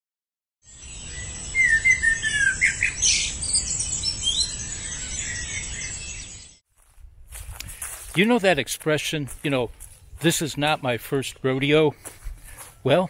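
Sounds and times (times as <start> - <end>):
birds chirping and calling: 0.7 - 6.6.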